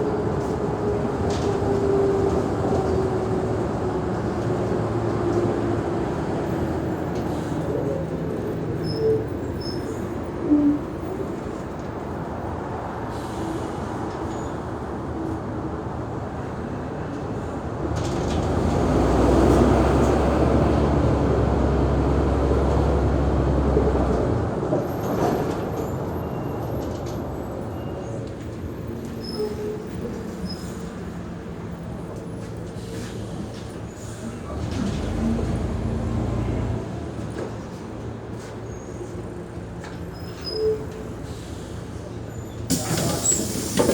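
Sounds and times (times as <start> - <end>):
bus diesel engine droning: 27.6 - 43.9.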